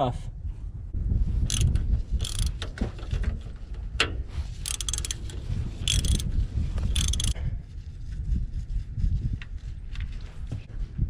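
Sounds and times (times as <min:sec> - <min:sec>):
steady low rumble: 0:00.0 - 0:11.0
ratchet wrench clicking: 0:01.5 - 0:02.7, 0:04.0 - 0:07.4.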